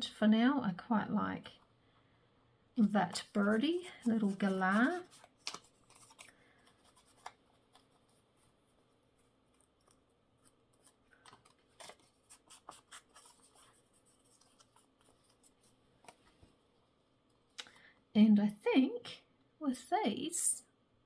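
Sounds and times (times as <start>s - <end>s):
scissors snipping paper: 3.2s - 7.4s.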